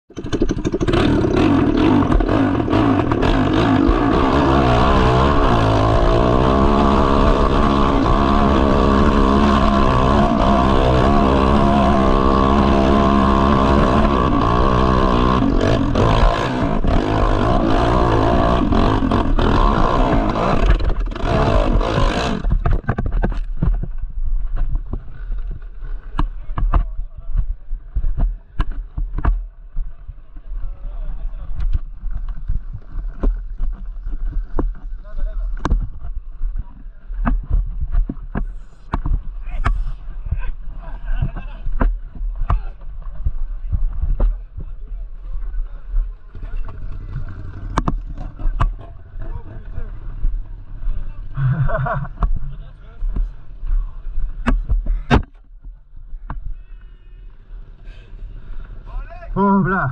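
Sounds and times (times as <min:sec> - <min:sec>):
motorcycle engine revving hard: 0:00.1 - 0:22.8, 0:46.2 - 0:52.1.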